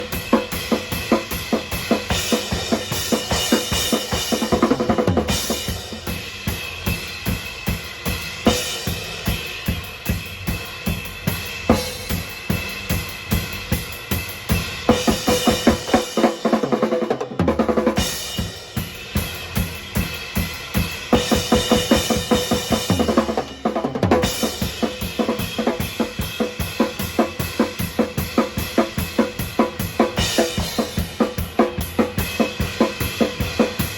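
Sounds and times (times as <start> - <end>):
cymbals: 0.0 - 16.6.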